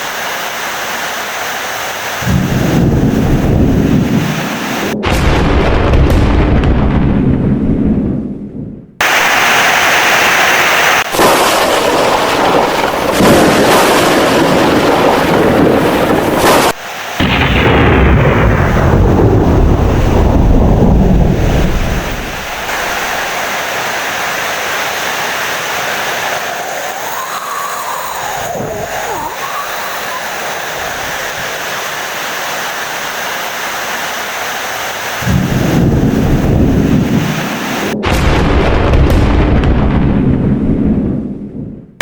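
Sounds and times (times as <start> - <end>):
heavy rain: 0.0 - 6.9, 9.0 - 40.8
low rumble of thunder: 2.2 - 9.0, 11.2 - 16.4, 17.2 - 23.4, 35.2 - 42.0.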